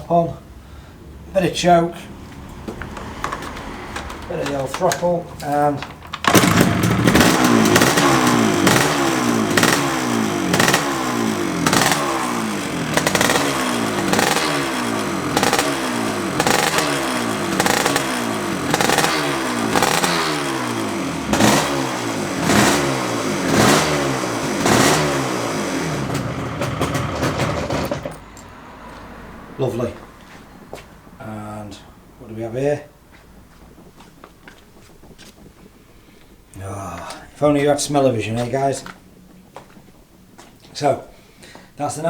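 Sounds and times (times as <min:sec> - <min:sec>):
two-stroke motorcycle engine revving: 0:06.2 - 0:28.2.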